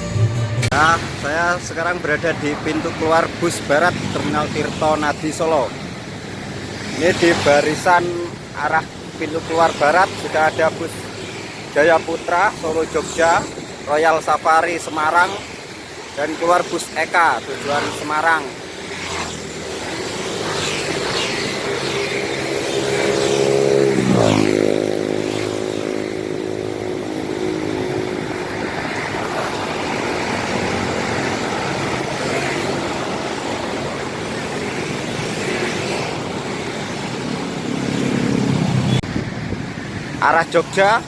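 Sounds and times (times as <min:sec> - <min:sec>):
bus engines running: 0:00.0 - 0:41.0
bus passing by: 0:14.8 - 0:41.0.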